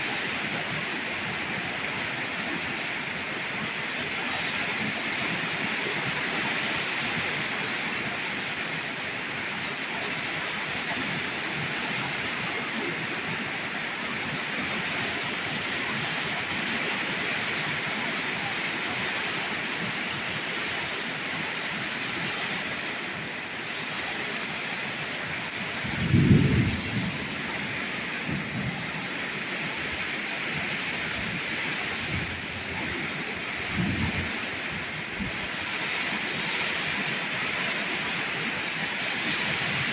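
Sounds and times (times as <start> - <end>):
torrential rain pouring: 0.0 - 39.9
thunder clap and rumbles: 25.7 - 29.0.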